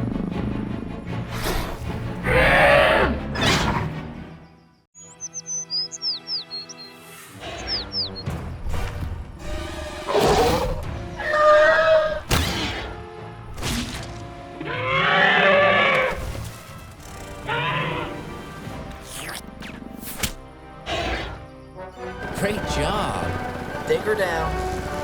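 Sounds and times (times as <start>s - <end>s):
background music: 0.0s - 25.0s
dinosaur roars and cries: 2.2s - 3.9s, 10.0s - 12.9s, 14.6s - 16.2s, 17.1s - 18.4s.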